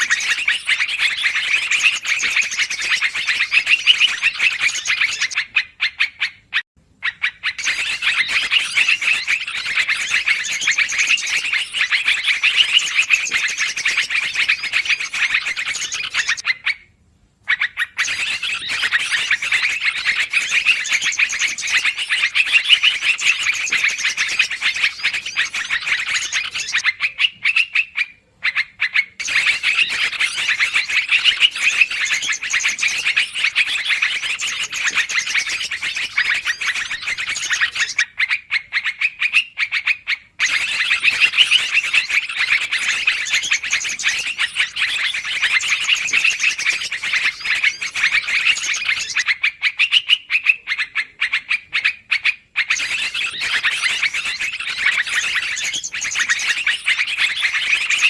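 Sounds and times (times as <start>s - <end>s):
bulbuls chattering: 0.0s - 5.4s, 7.6s - 16.4s, 29.2s - 38.0s, 40.4s - 49.4s.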